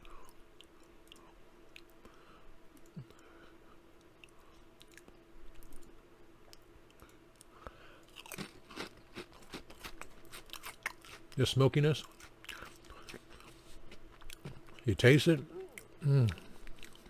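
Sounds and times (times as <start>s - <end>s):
low steady hum: 0.0s - 17.0s
mouth clicks chewing chips: 4.0s - 17.0s.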